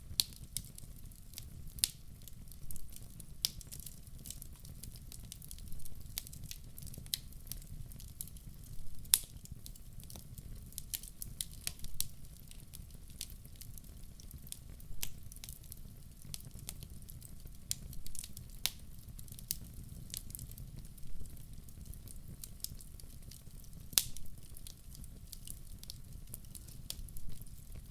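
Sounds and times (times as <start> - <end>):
wood fire crackling: 0.0 - 27.9
fire pops: 8.2 - 13.6, 14.2 - 15.7, 16.3 - 27.9.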